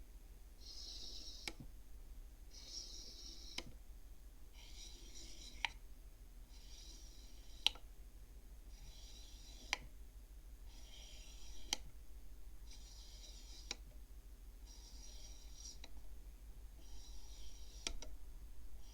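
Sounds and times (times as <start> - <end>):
abacus beads sliding and clicking: 0.6 - 1.7, 2.5 - 3.8, 4.6 - 5.8, 6.5 - 7.9, 8.7 - 9.9, 10.7 - 11.9, 12.7 - 14.0, 14.7 - 16.0, 16.8 - 18.2.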